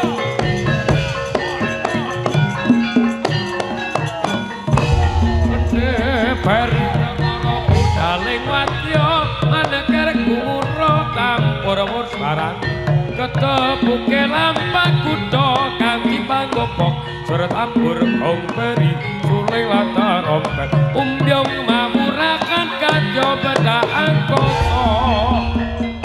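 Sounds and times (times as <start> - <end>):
metallophone notes: 0.0 - 20.3, 24.1 - 26.0
hand drumming: 4.2 - 11.8
wavering melody line: 4.6 - 12.2
deep heavy drum beat: 4.7 - 11.8, 24.4 - 26.0.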